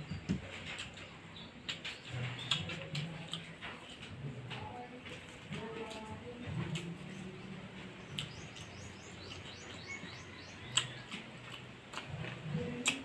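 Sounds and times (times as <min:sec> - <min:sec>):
low background murmur: 0:00.0 - 0:13.0
small bird chirping: 0:08.0 - 0:11.2.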